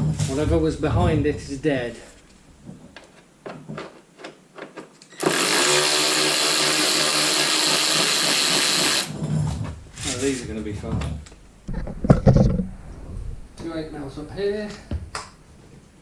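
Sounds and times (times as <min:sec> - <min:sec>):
power driver running: 0:05.2 - 0:09.2.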